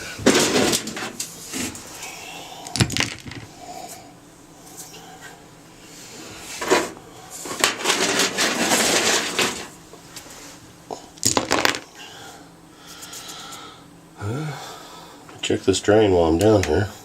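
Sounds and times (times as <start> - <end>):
concrete scraping and rattling: 0.2 - 1.7, 6.6 - 9.8
concrete chunks knocking in drum: 11.2 - 11.8.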